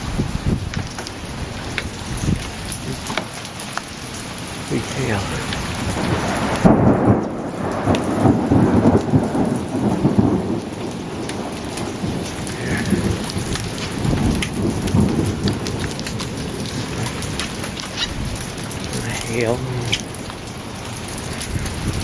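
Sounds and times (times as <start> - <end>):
thunder rolling: 0.0 - 3.4, 4.7 - 22.0
steady rain: 0.0 - 22.0.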